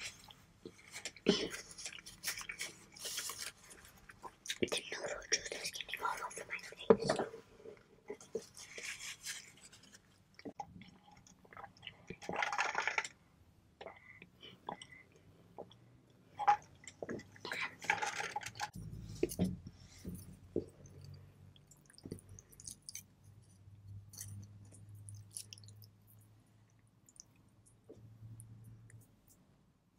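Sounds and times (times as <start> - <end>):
person chewing noodles: 20.6 - 27.4
wet mouth clicks and smacks: 24.2 - 26.0.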